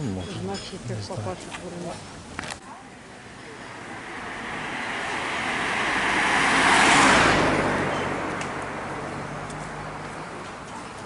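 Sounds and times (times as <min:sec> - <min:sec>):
car driving past: 0:03.0 - 0:10.6.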